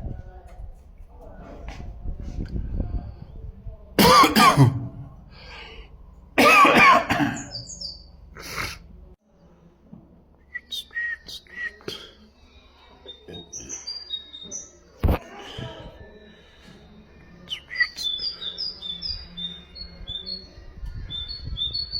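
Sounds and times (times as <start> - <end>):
loud harsh coughs: 4.0 - 5.1, 6.4 - 7.6
songbird chirps: 7.1 - 8.7, 10.4 - 21.9.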